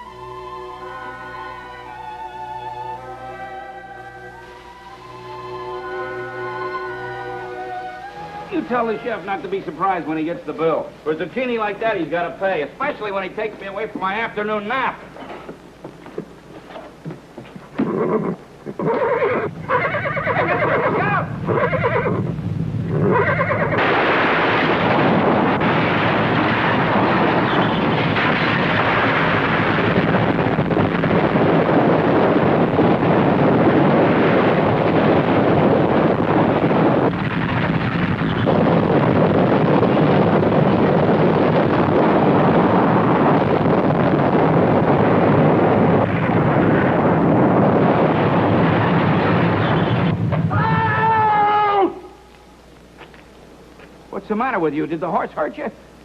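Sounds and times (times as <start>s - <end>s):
loud continuous rumbling: 0.0s - 56.0s
horse whinnying: 17.7s - 22.3s, 22.9s - 23.8s.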